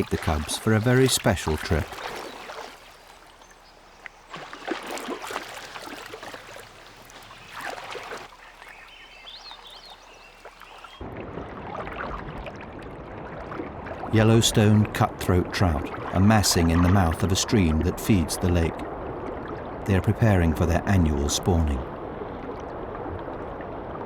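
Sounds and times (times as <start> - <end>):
fast-flowing stream water: 0.0 - 3.3
water splashing and lapping: 0.0 - 24.0.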